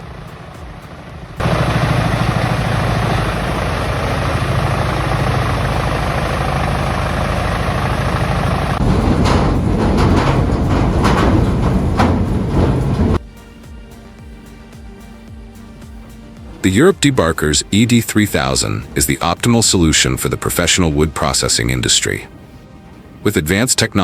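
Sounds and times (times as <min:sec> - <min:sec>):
wood chipper engine under load: 0:00.0 - 0:13.2.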